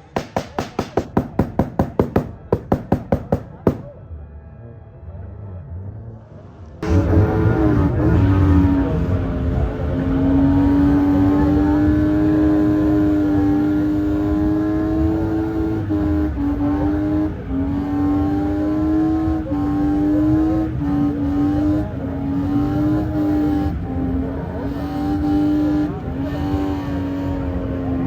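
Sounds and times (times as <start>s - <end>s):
car engine at high revs: 6.8s - 28.0s.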